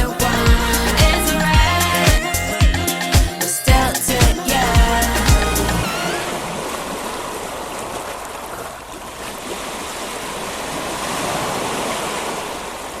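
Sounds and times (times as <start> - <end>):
waves washing onto beach: 5.9 - 13.0.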